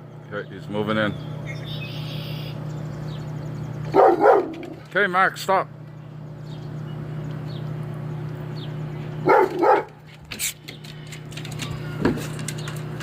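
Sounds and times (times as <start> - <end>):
steady low hum: 0.0 - 13.0
dog barking: 3.9 - 4.8, 9.2 - 10.0.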